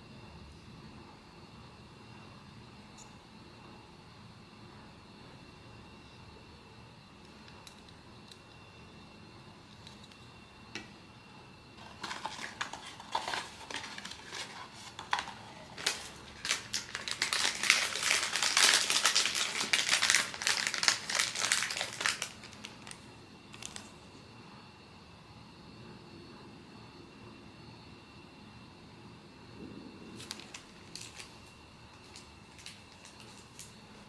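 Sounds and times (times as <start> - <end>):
plastic packaging crinkling: 11.8 - 24.0, 30.2 - 34.0.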